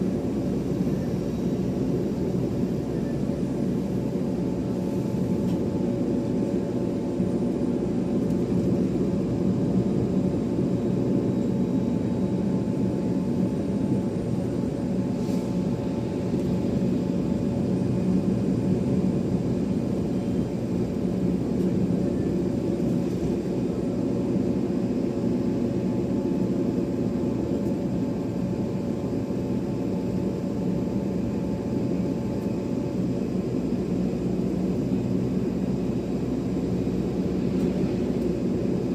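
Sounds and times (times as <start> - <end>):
airliner engines idling: 0.0 - 38.9.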